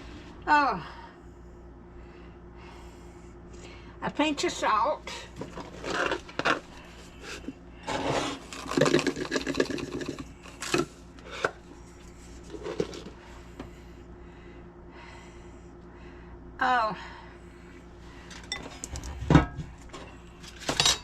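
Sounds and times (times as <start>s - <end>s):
scraping and rubbing: 5.4s - 10.6s, 11.2s - 13.2s.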